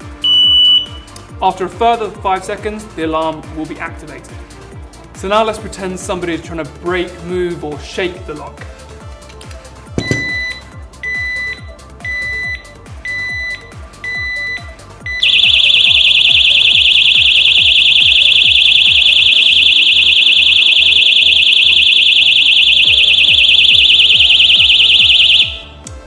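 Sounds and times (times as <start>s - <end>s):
loud high-pitched alarm: 0.2s - 1.0s, 15.1s - 25.7s
lock alarm warning beeps: 0.2s - 1.1s, 10.0s - 25.8s.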